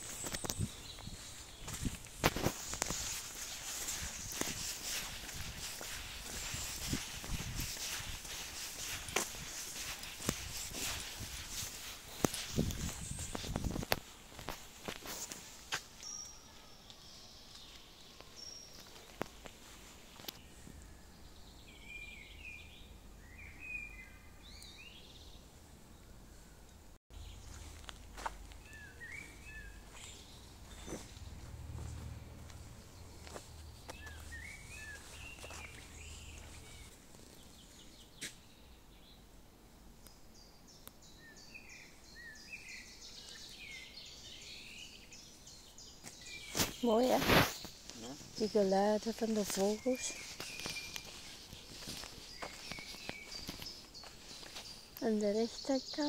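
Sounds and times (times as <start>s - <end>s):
footsteps on dirt path: 0.0s - 16.3s, 17.5s - 20.4s, 27.2s - 38.4s, 45.6s - 56.0s
birds calling faintly: 0.0s - 56.0s.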